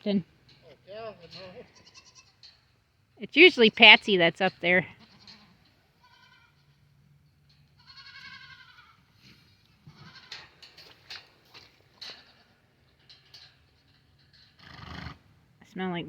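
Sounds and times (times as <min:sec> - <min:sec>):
goat bleating: 0:01.4 - 0:02.4, 0:05.0 - 0:06.8, 0:07.8 - 0:09.1, 0:09.8 - 0:10.4.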